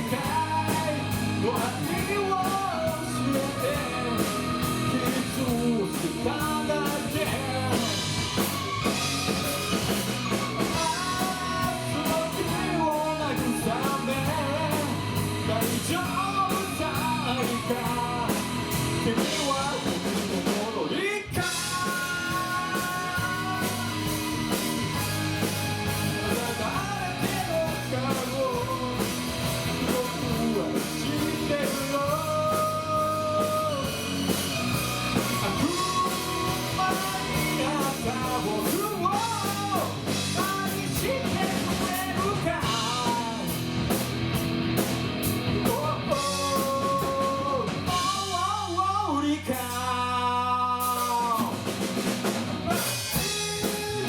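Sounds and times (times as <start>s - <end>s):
person singing lead vocal: 0.0s - 43.8s, 45.5s - 51.9s, 52.6s - 54.0s
drum kit: 0.0s - 54.0s
electric guitar: 0.0s - 54.0s.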